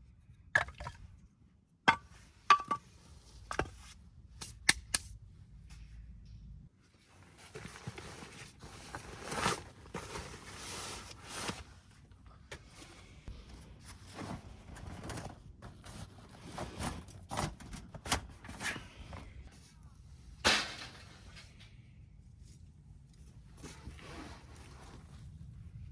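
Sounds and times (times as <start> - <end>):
handling rustling: 7.1 - 12.0.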